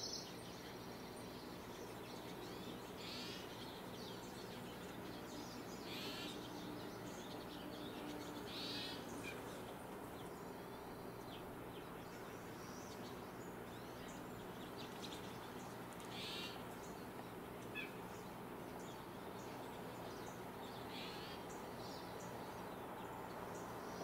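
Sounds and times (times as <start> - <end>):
faint bird chirps: 0.0 - 17.0
low steady hum: 0.0 - 24.0.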